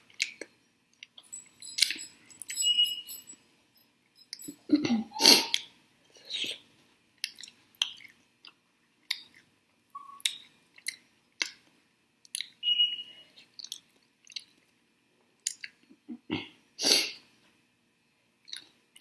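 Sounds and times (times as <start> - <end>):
chewing with wet mouth clicks: 7.2 - 11.6, 12.2 - 12.6, 13.6 - 14.7, 15.4 - 15.8, 18.4 - 19.0.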